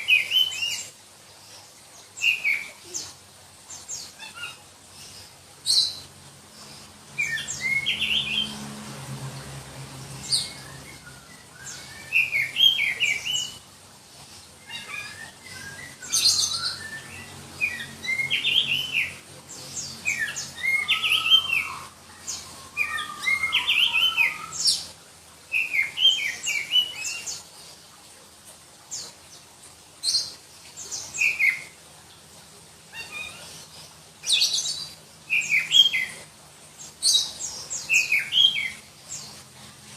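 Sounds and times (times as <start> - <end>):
bird singing shrill whistled notes: 10.3 - 13.6, 14.8 - 19.1, 20.1 - 22.0.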